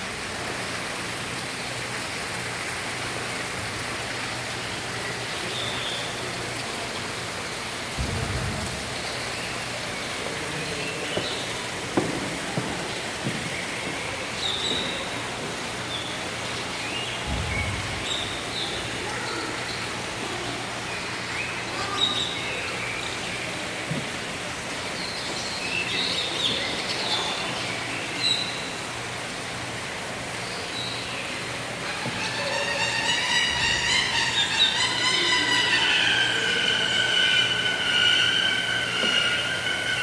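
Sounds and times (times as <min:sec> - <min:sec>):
steady hiss: 0:00.0 - 0:40.0
low rumble: 0:08.0 - 0:09.7
birds chirping: 0:08.0 - 0:20.0, 0:30.4 - 0:40.0.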